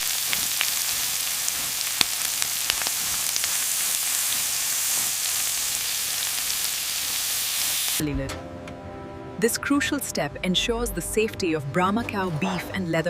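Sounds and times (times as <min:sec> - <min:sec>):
sharp crackles and clicks: 0:00.0 - 0:08.0
steady hissing: 0:00.0 - 0:08.0.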